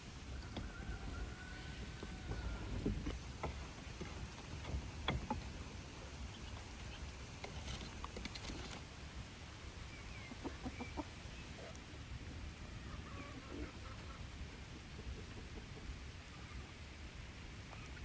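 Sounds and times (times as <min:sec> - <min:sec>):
small clicks and knocks: 0:00.1 - 0:08.8.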